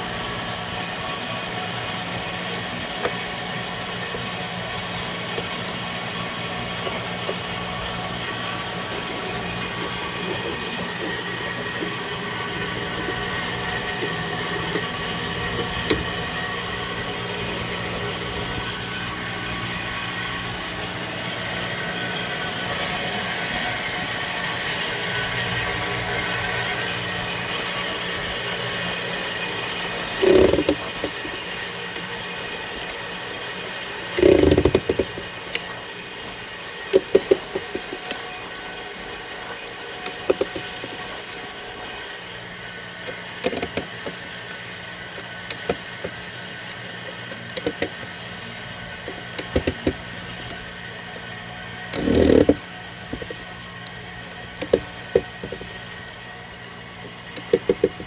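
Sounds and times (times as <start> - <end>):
steady hum: 0.0 - 58.0
clicks and knocks of parts: 30.1 - 32.1.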